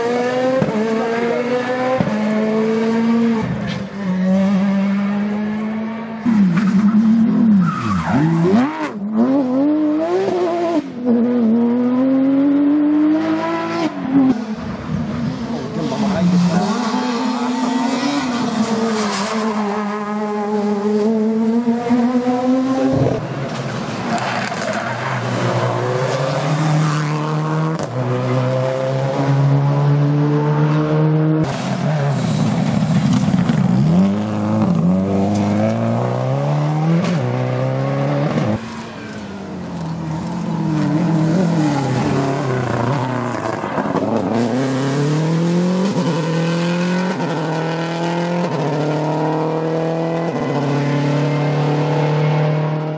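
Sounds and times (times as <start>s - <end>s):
rally car engines revving: 0.0s - 52.9s.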